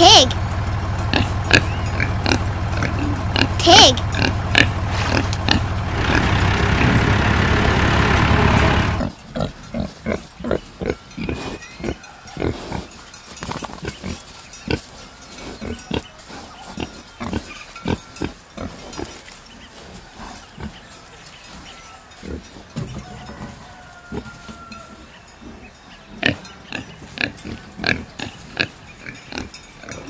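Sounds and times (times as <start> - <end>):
pig grunting: 1.1 - 12.9
pig squealing: 1.2 - 3.6.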